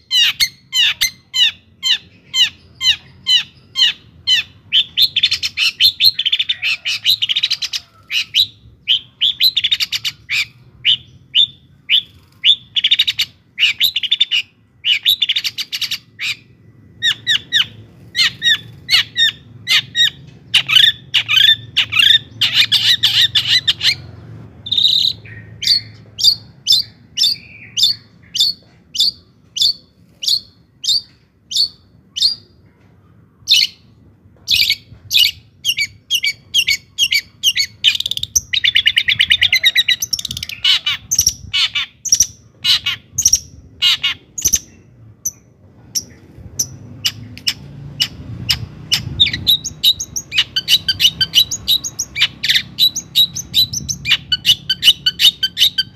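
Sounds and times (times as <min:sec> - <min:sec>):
bird chattering song: 0:00.0 - 0:32.5, 0:34.5 - 0:55.9.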